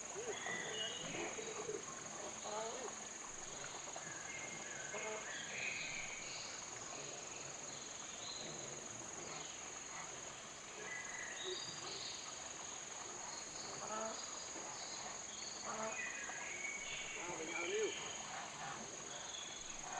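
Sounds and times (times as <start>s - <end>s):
insects droning: 0.0s - 19.9s.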